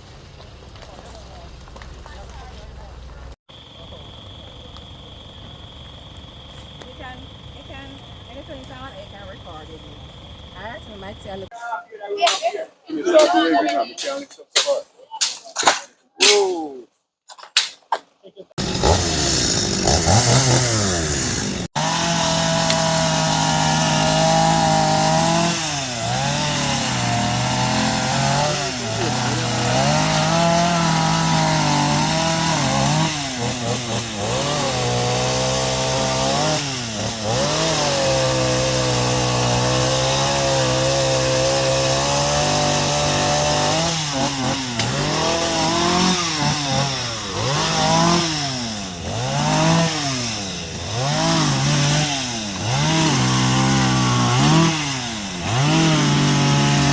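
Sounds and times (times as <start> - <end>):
chainsaw cutting wood: 18.6 - 56.9.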